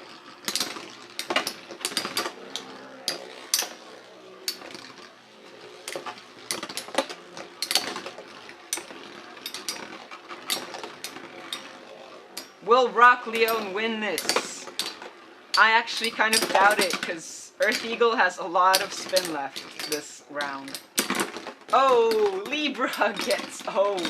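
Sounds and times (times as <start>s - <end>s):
faint whir of spinning tops: 0.0s - 24.0s
spinning tops clacking: 0.0s - 24.0s.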